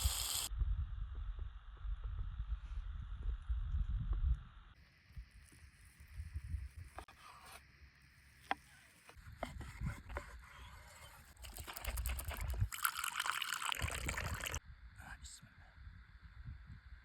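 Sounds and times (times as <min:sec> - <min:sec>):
liquid trickling and pouring: 0:11.0 - 0:14.6.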